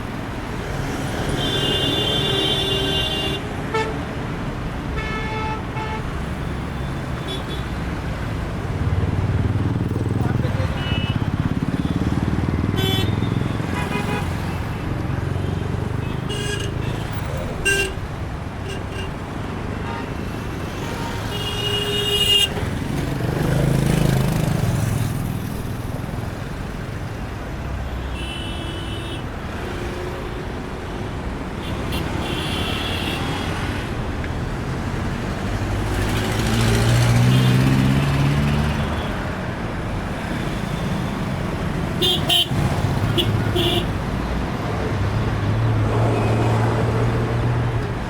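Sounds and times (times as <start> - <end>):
heavy vehicle engines running: 6.2 - 21.2.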